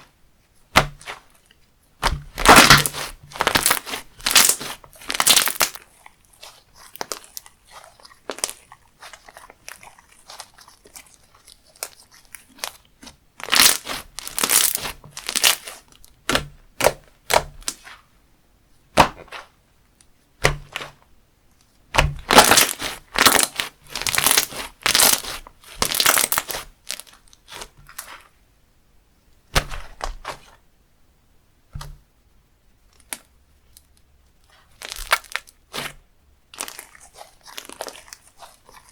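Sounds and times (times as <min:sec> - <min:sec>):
slime crackling and popping: 0:00.7 - 0:01.4, 0:02.0 - 0:18.0, 0:21.9 - 0:28.3, 0:32.9 - 0:35.9, 0:36.5 - 0:38.9.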